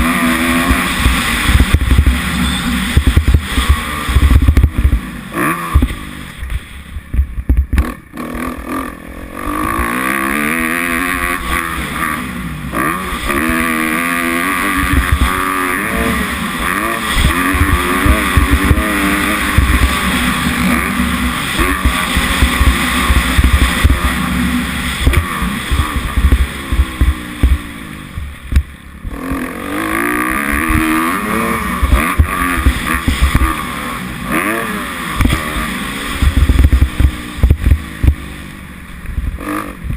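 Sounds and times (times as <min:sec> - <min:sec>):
wind rumble on microphone: 0:00.0 - 0:02.3, 0:02.9 - 0:08.0, 0:25.0 - 0:29.3, 0:35.2 - 0:38.3, 0:39.0 - 0:39.9
motocross engine revving: 0:00.0 - 0:39.9.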